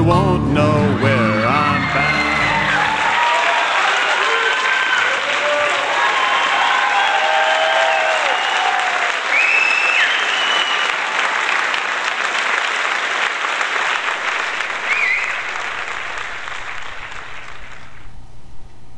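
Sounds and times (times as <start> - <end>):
crowd whistling: 0.9 - 11.1, 14.1 - 17.8
audience applauding: 1.0 - 18.1.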